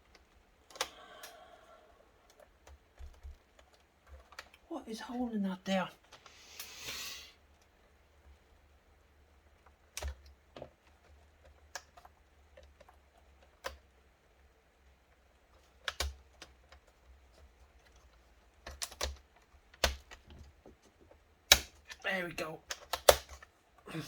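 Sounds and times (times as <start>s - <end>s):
plastic laptop parts clicking: 0.0s - 1.4s, 2.2s - 4.7s, 9.6s - 14.0s, 15.2s - 22.0s, 22.6s - 23.5s.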